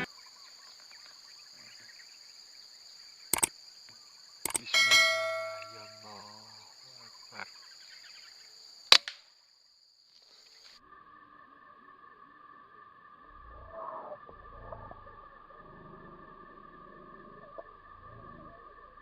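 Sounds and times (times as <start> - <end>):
sharp clicks: 3.3 - 3.5, 4.4 - 6.0
ringing metallic clang: 4.5 - 6.3.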